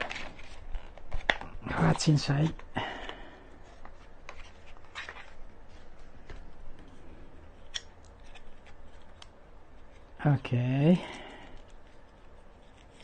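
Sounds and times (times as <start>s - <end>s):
packaging rustling: 0.0s - 7.0s.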